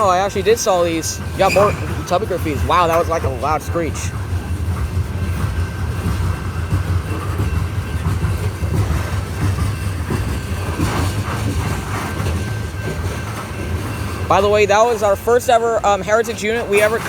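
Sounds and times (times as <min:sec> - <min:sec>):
faint high squeal: 0:00.0 - 0:03.4
train wheels rumbling on rail: 0:00.0 - 0:17.0
wheel clacks: 0:00.0 - 0:17.0.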